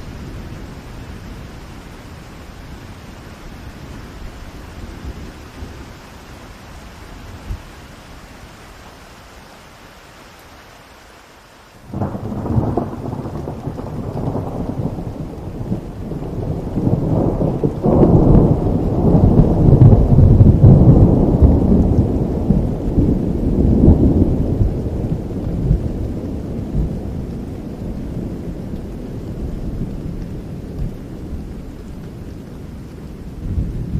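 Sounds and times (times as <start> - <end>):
heavy rain in forest: 0.0 - 33.9
thunder crack and rumble: 11.9 - 33.9.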